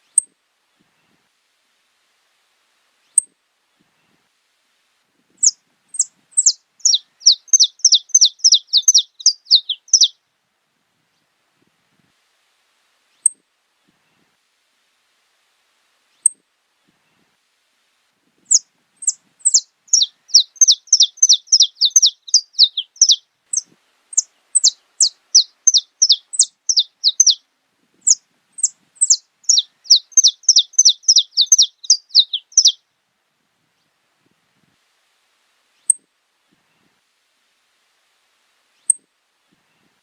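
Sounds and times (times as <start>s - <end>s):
finch singing: 5.4s - 10.2s, 18.5s - 27.4s, 28.0s - 32.8s.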